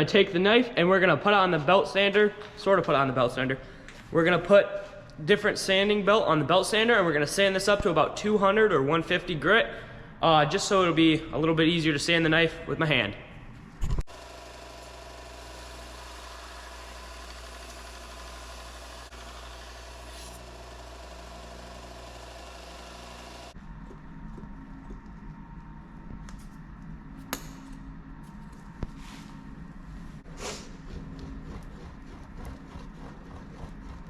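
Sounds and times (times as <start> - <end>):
belt sander running: 14.1 - 24.0.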